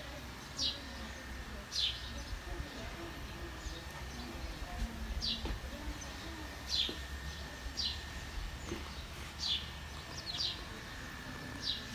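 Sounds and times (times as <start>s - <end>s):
small bird chirping: 3.5s - 10.8s.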